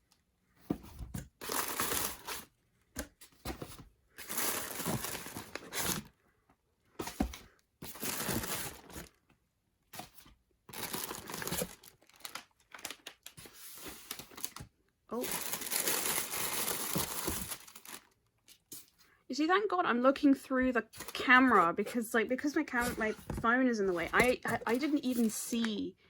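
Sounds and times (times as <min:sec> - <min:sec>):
packaging crinkling and tearing: 0:01.4 - 0:02.5, 0:04.2 - 0:06.1, 0:07.9 - 0:09.1, 0:10.7 - 0:18.7.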